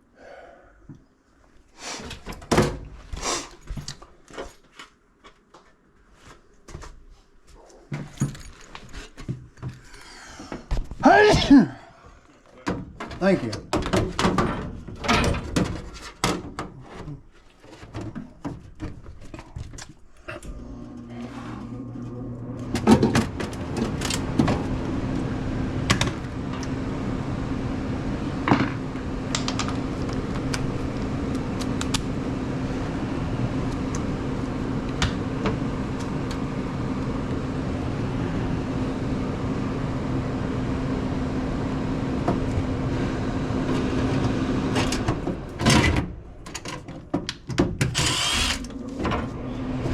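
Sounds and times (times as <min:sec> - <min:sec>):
furnace blower motor humming: 0:20.1 - 0:49.9.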